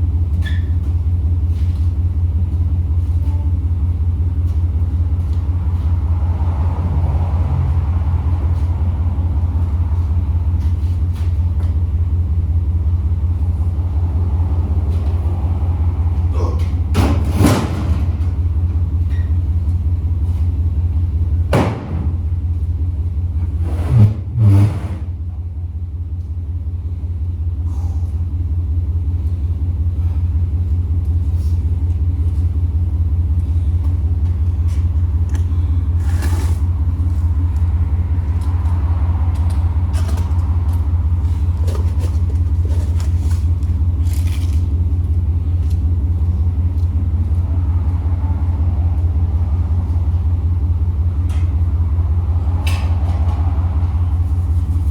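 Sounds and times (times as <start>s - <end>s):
vehicle engine idling: 0.0s - 54.9s
clunk: 16.5s - 18.4s
loud knocks: 21.5s - 22.3s.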